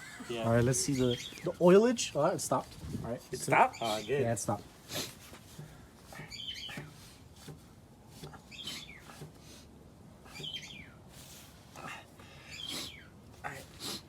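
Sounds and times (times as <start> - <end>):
bird chirping: 0.0 - 2.2, 3.4 - 4.5, 6.2 - 6.9, 8.3 - 9.2, 10.3 - 11.0, 12.4 - 13.2.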